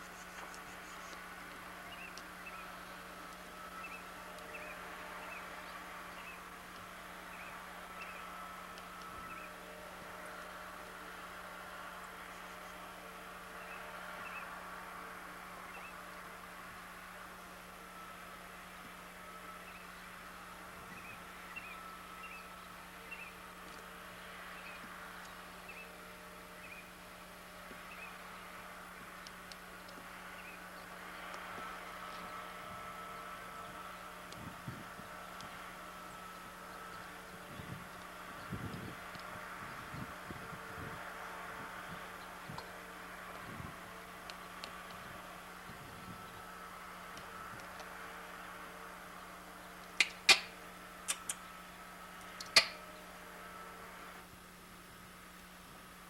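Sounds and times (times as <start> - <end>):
steady low hum: 0.0 - 56.0
tape hiss: 0.0 - 56.0.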